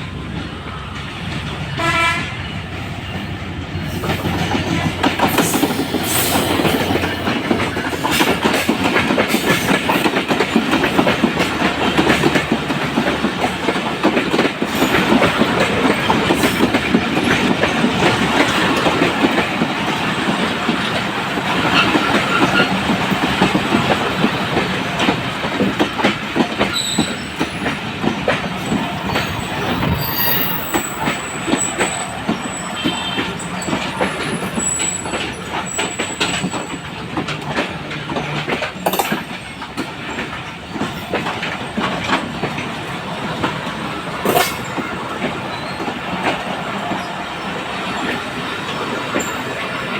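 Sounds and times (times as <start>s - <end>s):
train wheels clattering over rail joints: 0.2s - 49.9s
thin high wheel squeals: 26.7s - 27.8s, 28.7s - 36.8s, 45.5s - 46.0s.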